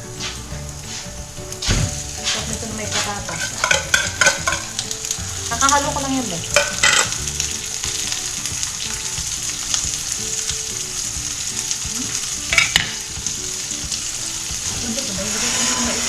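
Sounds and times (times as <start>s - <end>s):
food sizzling in a pan: 0.0s - 16.0s
utensil clattering against pan: 1.7s - 9.4s, 12.2s - 15.5s.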